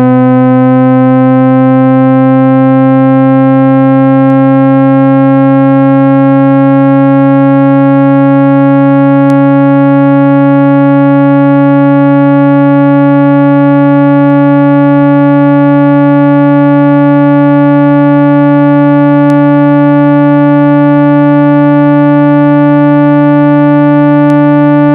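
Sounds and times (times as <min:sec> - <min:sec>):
buzzy electronic tone: 0:00.0 - 0:24.9.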